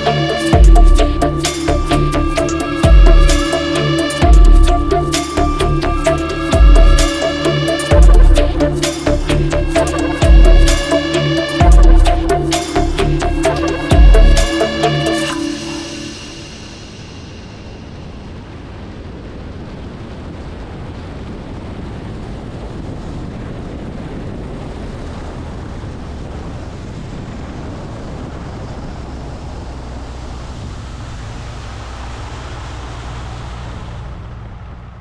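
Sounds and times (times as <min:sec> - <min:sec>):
loud rushing noise: 0:00.0 - 0:19.0
low hum: 0:00.0 - 0:20.0.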